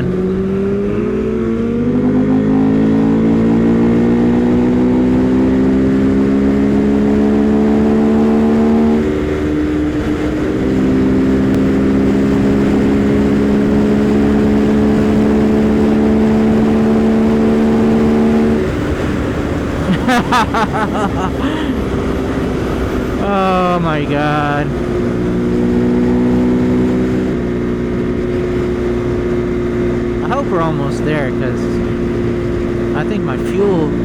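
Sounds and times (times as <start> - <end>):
motorcycle engine under throttle: 0.0 - 20.0, 24.7 - 30.5.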